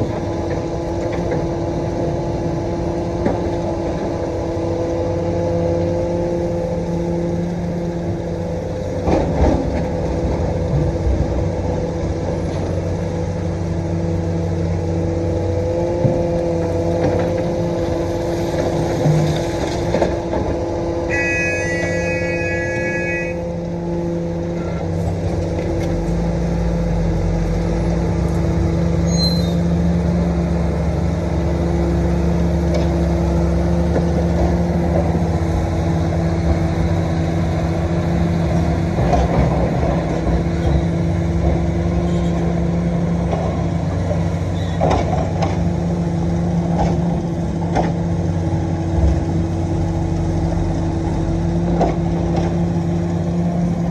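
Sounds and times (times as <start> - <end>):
excavator diesel engine running: 0.0 - 53.9
brief high tone: 21.1 - 23.5.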